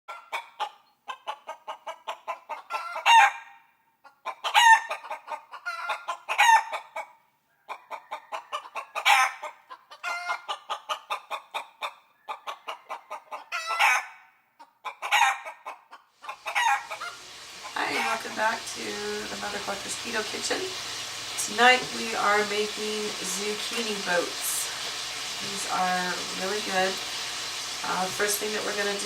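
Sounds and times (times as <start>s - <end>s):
chickens clucking: 0.1s - 3.4s, 4.0s - 29.0s
hen squawking: 16.2s - 29.0s.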